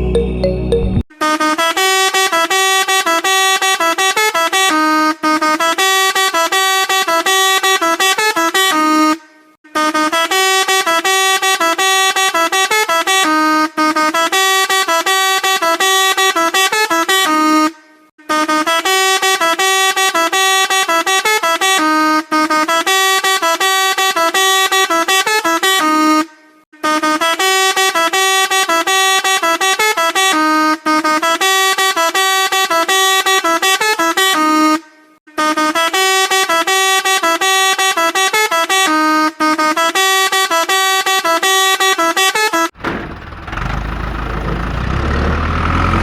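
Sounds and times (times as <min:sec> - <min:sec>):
electronic beeping melody: 0:00.0 - 0:01.0.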